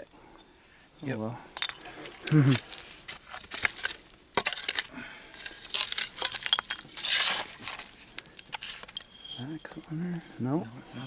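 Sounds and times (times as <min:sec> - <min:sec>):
bottles scraping: 0:01.0 - 0:11.0
glass bottles clinking: 0:01.5 - 0:02.9, 0:03.6 - 0:09.8.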